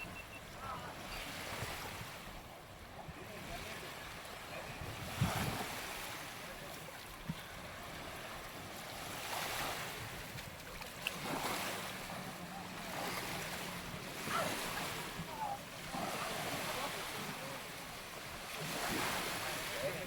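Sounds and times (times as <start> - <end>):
waves washing onto beach: 0.0 - 20.0
wind buffeting microphone: 4.5 - 6.0.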